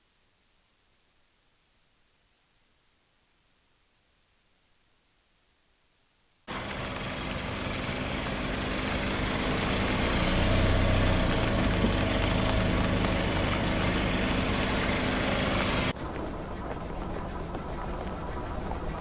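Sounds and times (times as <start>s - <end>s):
car engine running: 6.5s - 15.9s.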